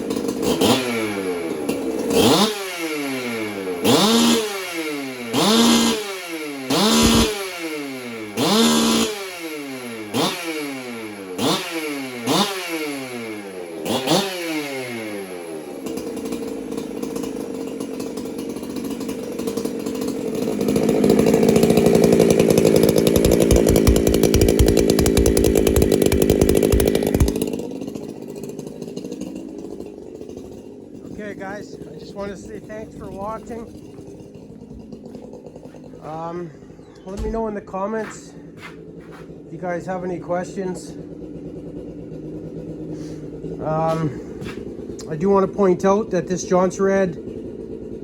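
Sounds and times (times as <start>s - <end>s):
chainsaw engine revving and idling: 0.0s - 48.0s.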